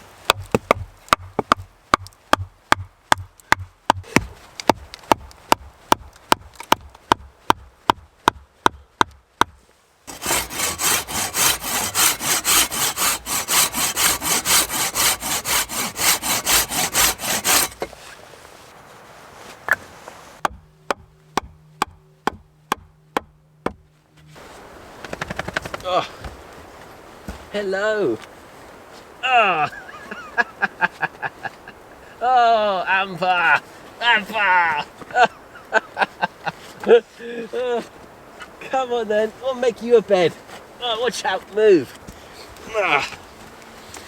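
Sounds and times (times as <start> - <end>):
sharp wood knocks: 0.3 - 17.9, 20.4 - 23.8
hand saw cutting wood: 10.1 - 18.0.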